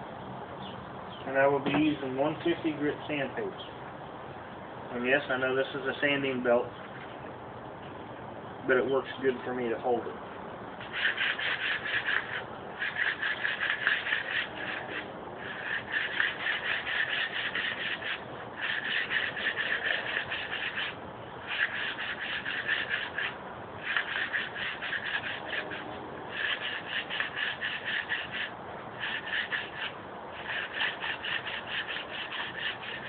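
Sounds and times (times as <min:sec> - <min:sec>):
sanding belt rasping on wood: 0:10.8 - 0:33.0.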